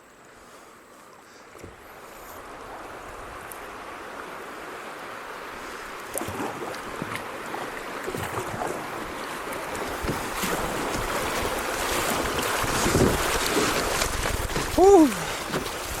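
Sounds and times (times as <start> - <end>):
creek water rushing: 0.0 - 16.0
kayak paddle splashes: 1.3 - 16.0.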